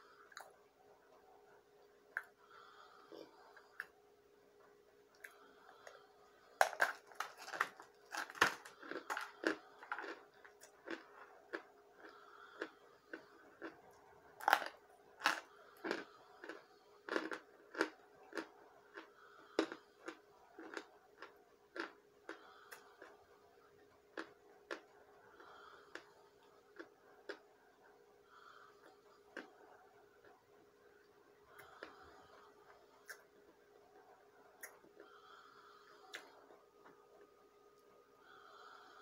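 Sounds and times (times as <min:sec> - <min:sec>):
sharp chewing crunches: 0:06.6 - 0:23.2.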